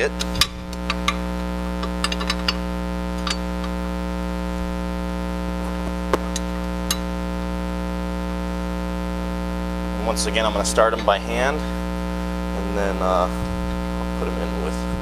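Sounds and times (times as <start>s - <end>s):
electrical hum: 0.0s - 15.0s
metal bracket and bolts clinking: 0.2s - 3.8s.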